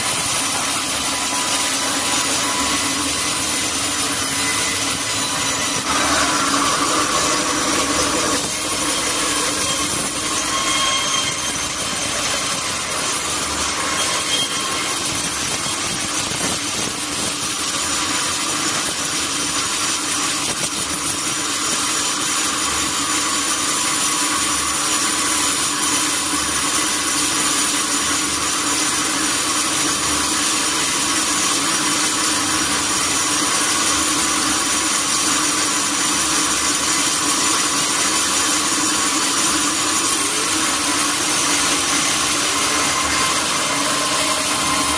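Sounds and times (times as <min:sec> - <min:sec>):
saw blade hissing through log: 0:00.0 - 0:18.8, 0:30.2 - 0:44.9
sawmill machine humming: 0:00.0 - 0:44.9.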